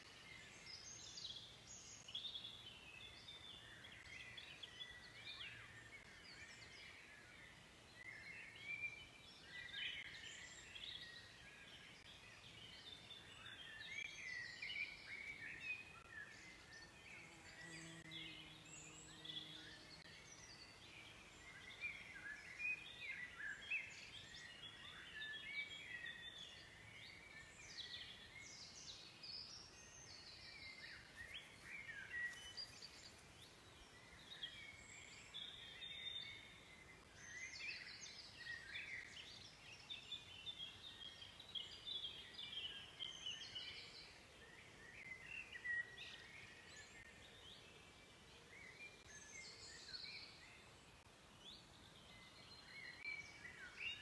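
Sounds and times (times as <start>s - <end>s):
birds chirping and warbling: 0.0s - 54.0s.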